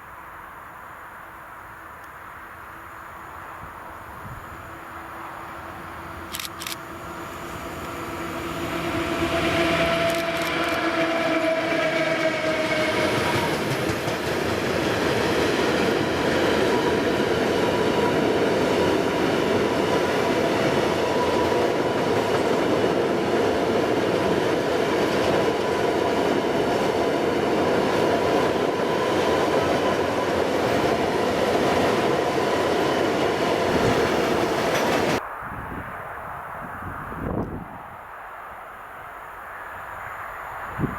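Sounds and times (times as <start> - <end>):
train wheels rolling on rails: 3.2 - 35.3.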